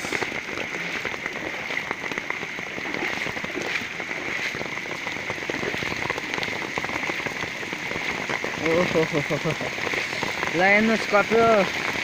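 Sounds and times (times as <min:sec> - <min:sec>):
floodwater pouring into pond: 0:00.0 - 0:12.0
heavy rain falling: 0:00.0 - 0:12.0.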